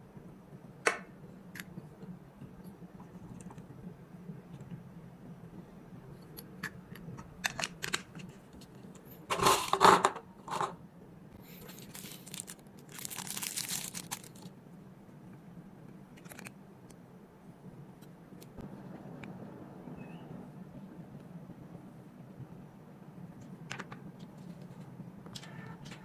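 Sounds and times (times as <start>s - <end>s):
packaging crinkling and rustling: 11.6s - 14.5s, 16.2s - 16.5s.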